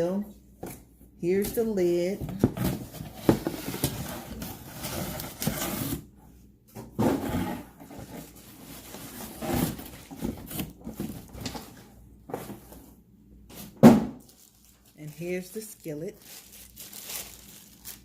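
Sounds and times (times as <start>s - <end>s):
packaging rustling: 14.2s - 18.0s.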